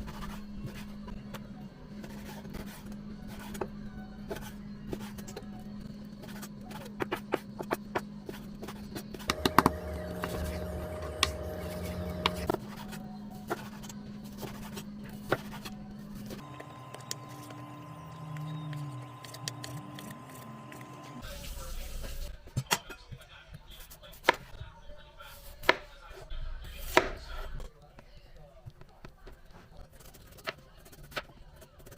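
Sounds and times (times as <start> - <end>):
appliance hum: 8.6 - 21.6.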